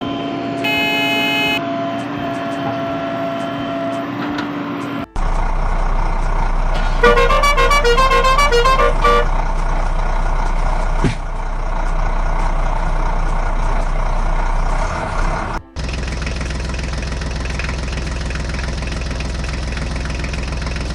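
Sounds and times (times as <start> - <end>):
horn blast: 0.0 - 4.2, 6.7 - 11.6
steady drone: 0.0 - 20.9.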